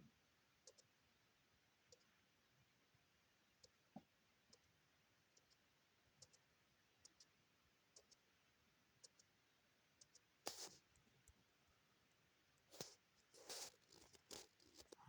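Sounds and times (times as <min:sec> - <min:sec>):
computer mouse clicks: 0:00.6 - 0:00.9, 0:05.3 - 0:05.6, 0:06.2 - 0:06.4, 0:07.0 - 0:07.3, 0:07.9 - 0:08.2, 0:09.0 - 0:09.3, 0:10.0 - 0:10.8.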